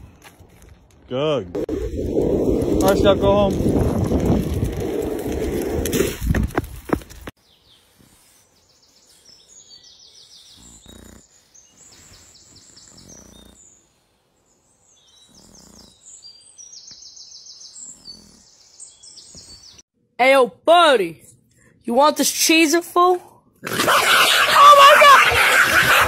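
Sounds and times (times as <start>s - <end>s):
songbirds chirping and trilling: 7.4s - 19.8s.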